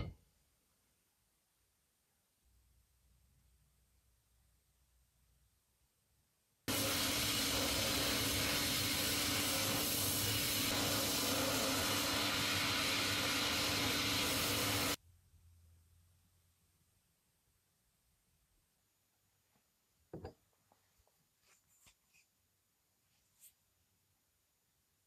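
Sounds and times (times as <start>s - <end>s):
compressed-air tool hissing: 6.7s - 15.0s.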